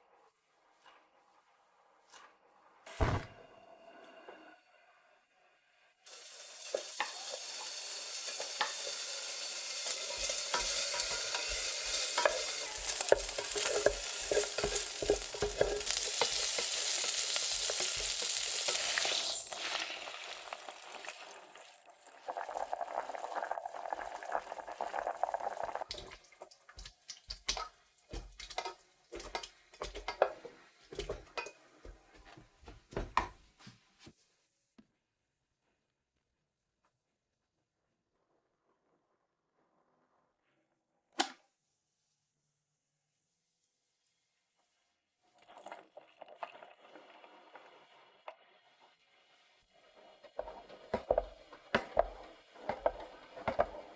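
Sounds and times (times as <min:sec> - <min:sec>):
utensil scraping pan: 0:06.1 - 0:19.9
food sizzling in frying pan: 0:06.1 - 0:31.6, 0:46.8 - 0:53.9.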